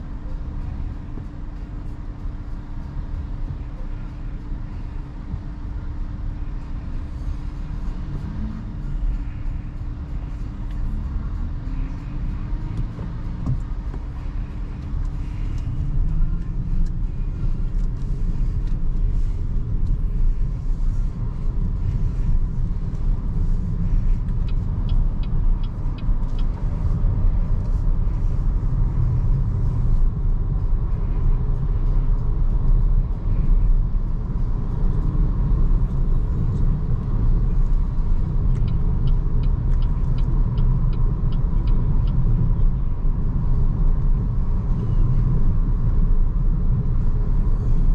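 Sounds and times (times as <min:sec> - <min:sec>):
tyre and road rumble: 0:00.0 - 0:47.9
light even ticking: 0:06.7 - 0:44.7.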